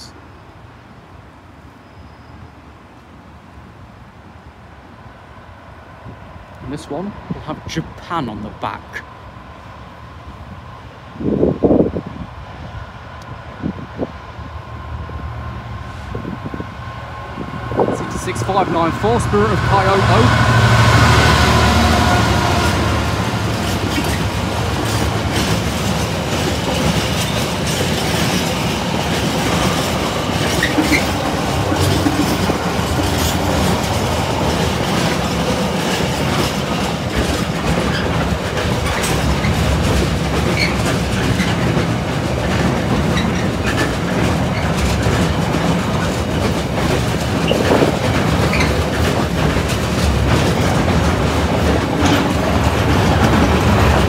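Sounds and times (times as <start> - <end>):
diesel locomotive engine passing: 0.0 - 54.0
freight train rumbling past: 0.0 - 54.0
wheels clattering over rail joints: 18.2 - 54.0.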